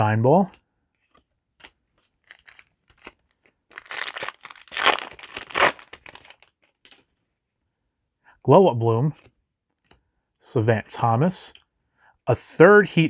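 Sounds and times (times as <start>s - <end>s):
foil wrapper tearing and crinkling: 2.3s - 6.5s.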